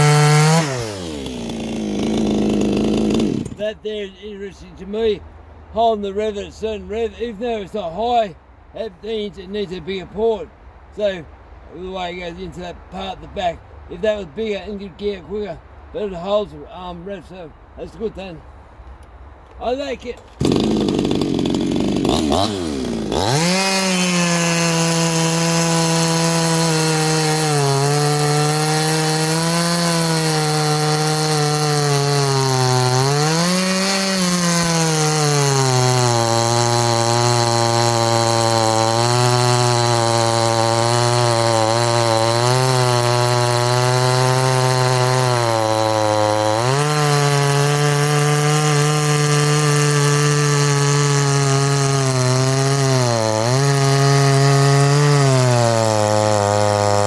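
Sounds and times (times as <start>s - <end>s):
chainsaw cutting: 0.0s - 4.1s, 19.6s - 57.0s.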